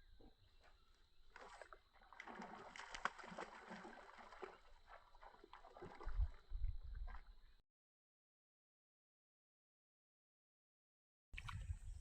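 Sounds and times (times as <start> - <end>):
water splashing and sloshing: 0.6 - 7.6.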